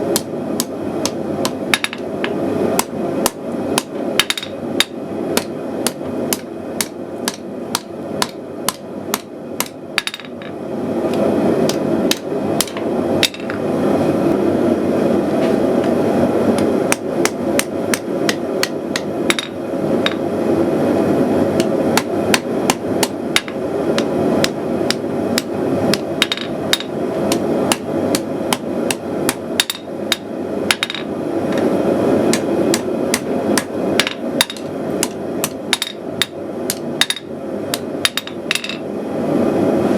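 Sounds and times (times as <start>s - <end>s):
gas forge burner roaring: 0.0s - 39.9s
hammer striking steel on anvil: 0.1s - 10.5s, 16.9s - 20.2s, 21.6s - 31.1s, 32.3s - 38.8s.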